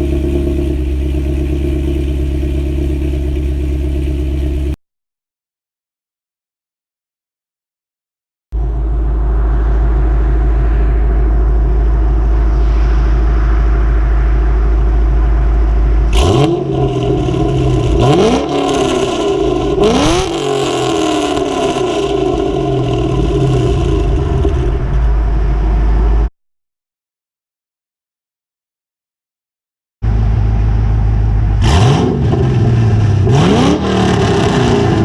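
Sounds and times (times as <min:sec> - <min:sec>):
car engine idling with deep rumble: 0:00.0 - 0:04.8, 0:08.6 - 0:26.3, 0:30.0 - 0:35.0
engine revving: 0:00.0 - 0:04.8, 0:08.6 - 0:26.3, 0:30.1 - 0:35.0.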